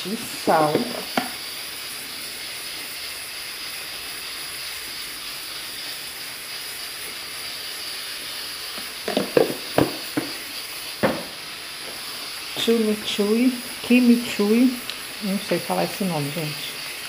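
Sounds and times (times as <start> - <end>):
chicken frying sizzle: 0.0 - 17.0
container knocks: 9.1 - 10.3, 11.0 - 11.3.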